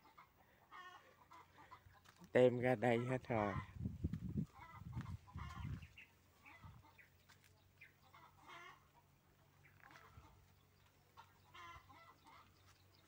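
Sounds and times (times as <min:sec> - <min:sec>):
faint bird calls: 0:04.6 - 0:13.0.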